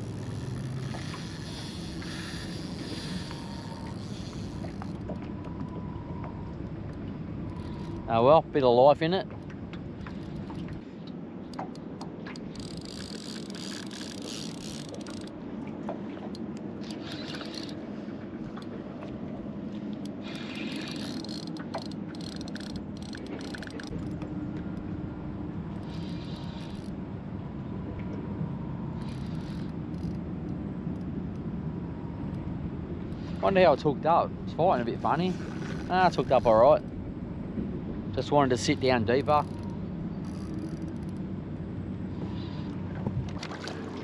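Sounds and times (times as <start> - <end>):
fishing reel gears ticking: 0.0 - 5.0, 12.4 - 15.3, 17.0 - 17.8, 20.0 - 24.2, 29.0 - 30.2, 34.9 - 36.7, 38.6 - 41.2
steady low hum: 17.4 - 43.5.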